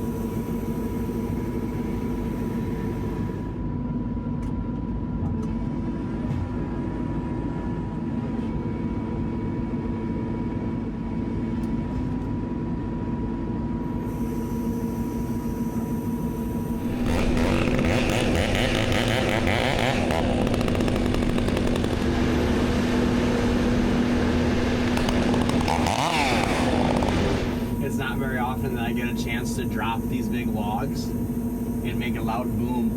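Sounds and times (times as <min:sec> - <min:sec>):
heavy machinery engine running: 0:13.8 - 0:32.9
chainsaw running: 0:14.8 - 0:32.9.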